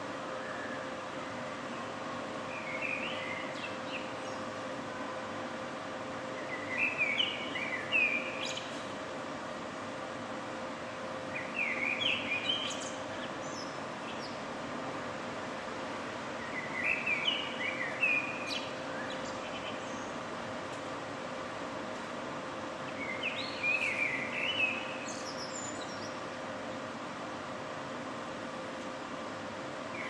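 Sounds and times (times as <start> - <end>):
low city hum: 0.0 - 30.0
songbird warbling: 11.3 - 14.4, 16.4 - 20.1, 22.9 - 26.2.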